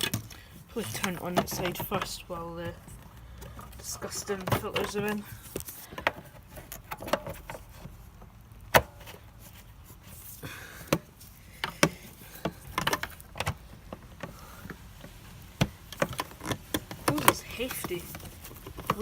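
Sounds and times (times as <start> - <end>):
plastic clicks and knocks: 0.0 - 2.3, 10.9 - 14.8, 15.6 - 19.0.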